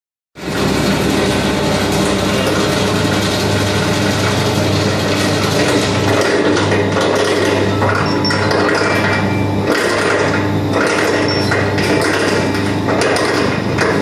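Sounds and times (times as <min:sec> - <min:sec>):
grinder machine running: 0:00.4 - 0:14.0.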